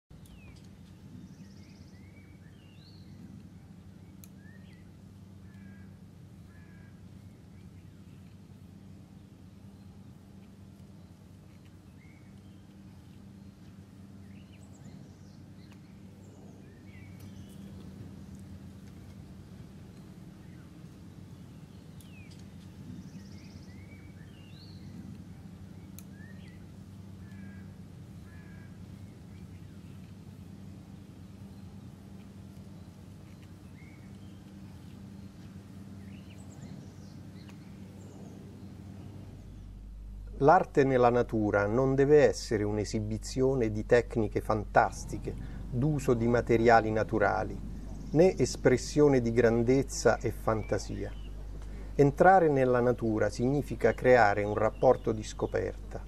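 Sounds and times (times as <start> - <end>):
birds calling: 0.1 - 56.0
steady low hum: 0.1 - 56.0
bird trill: 32.7 - 56.0.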